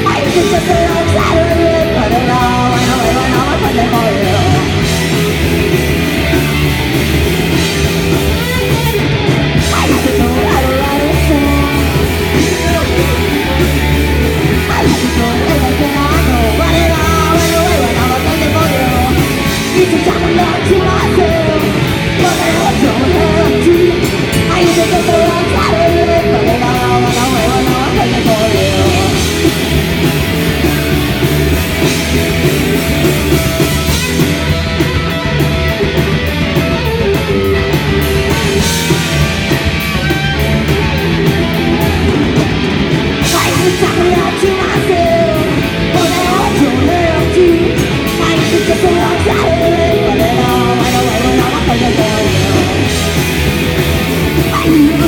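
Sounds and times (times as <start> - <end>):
person singing: 0.0 - 5.0, 9.6 - 29.5, 43.2 - 53.2, 54.3 - 55.0
bass guitar: 0.0 - 55.0
distorted electric guitars: 0.0 - 55.0
drums: 0.0 - 55.0.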